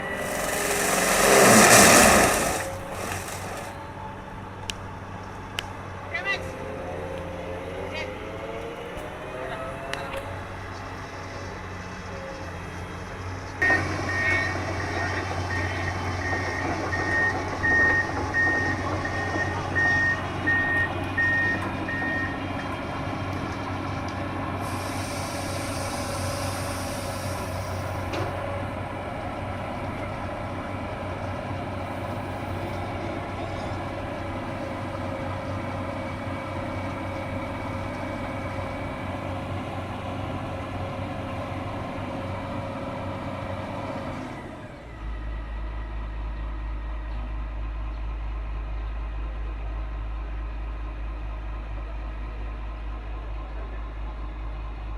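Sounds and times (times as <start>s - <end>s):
hissing noise: 0.0s - 3.8s
excavator engine running: 0.0s - 47.7s.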